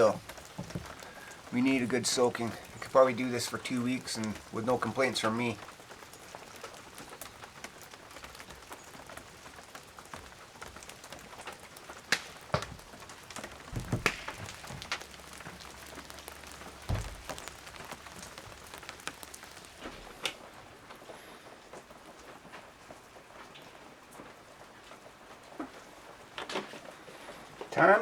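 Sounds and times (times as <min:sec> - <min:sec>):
drips and knocks: 0:00.0 - 0:05.8, 0:10.1 - 0:20.4
rain pattering: 0:00.0 - 0:28.0.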